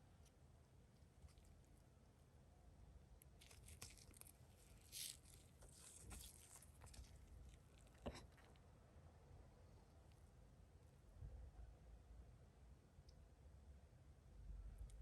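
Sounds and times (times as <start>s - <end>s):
packaging rustling and tearing: 3.4s - 7.2s.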